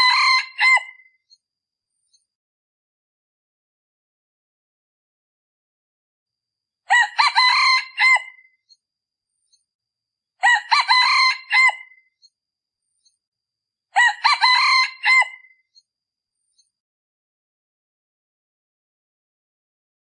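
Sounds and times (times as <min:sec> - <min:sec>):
junglefowl crowing: 0:00.0 - 0:01.1, 0:06.9 - 0:08.5, 0:10.4 - 0:12.0, 0:14.0 - 0:15.5.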